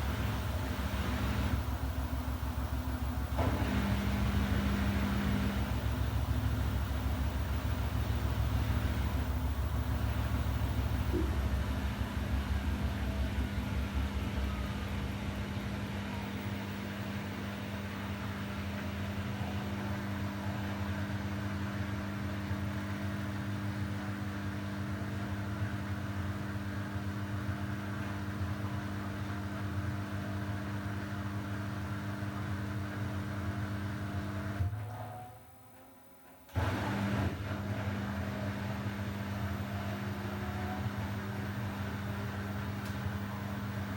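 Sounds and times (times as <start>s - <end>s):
washing machine drum rumble: 0.0s - 20.3s
washing machine motor hum: 0.0s - 34.7s, 36.5s - 43.9s.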